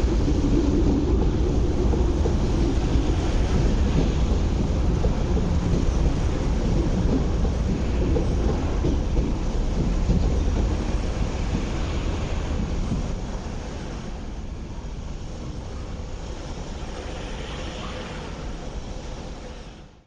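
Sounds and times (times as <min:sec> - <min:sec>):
electric train rumbling: 0:00.0 - 0:20.0
steady background noise: 0:00.0 - 0:20.0.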